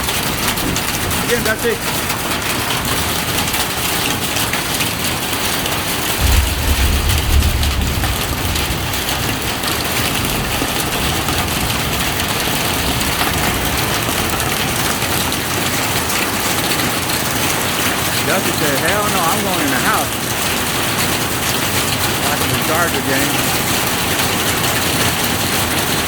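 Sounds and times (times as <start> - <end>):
heavy rain falling: 0.0 - 26.0
low rumble: 6.2 - 9.6.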